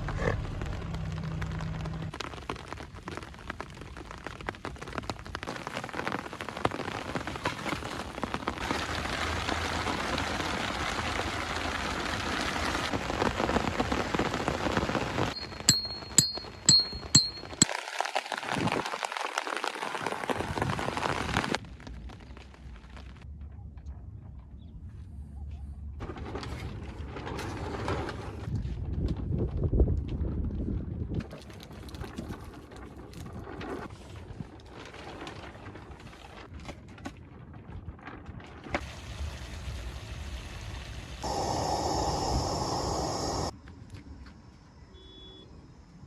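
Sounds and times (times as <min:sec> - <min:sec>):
rain falling steadily: 0:00.4 - 0:15.4, 0:17.7 - 0:23.2.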